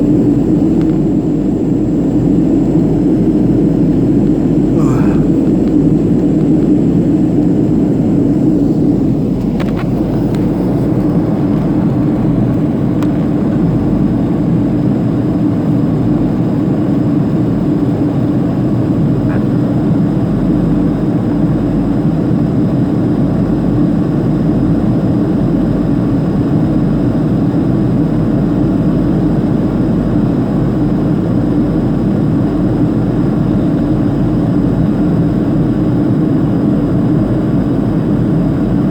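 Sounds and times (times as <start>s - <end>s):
jet engines humming: 0.0s - 15.4s
airplane cabin airflow rush: 0.0s - 38.9s.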